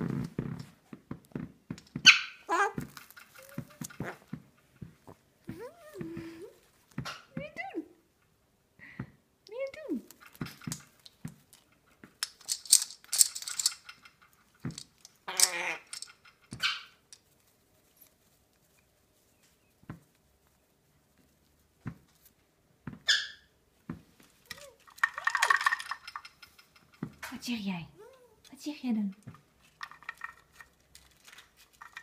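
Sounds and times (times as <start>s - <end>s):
parrot harsh calls and squeaks: 2.0s - 4.2s, 15.2s - 17.0s, 23.1s - 23.5s.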